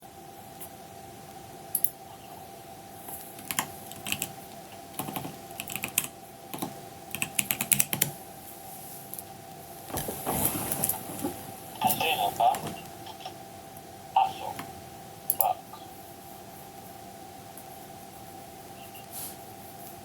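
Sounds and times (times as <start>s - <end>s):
faint steady hum: 0.0s - 20.0s
keyboard keys clicking: 3.4s - 8.1s.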